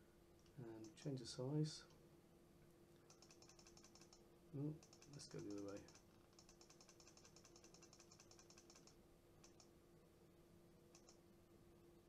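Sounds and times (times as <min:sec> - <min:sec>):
faint steady hum: 0:00.0 - 0:12.0
computer mouse clicking: 0:00.4 - 0:01.0, 0:03.0 - 0:04.2, 0:04.8 - 0:09.7, 0:10.9 - 0:11.2.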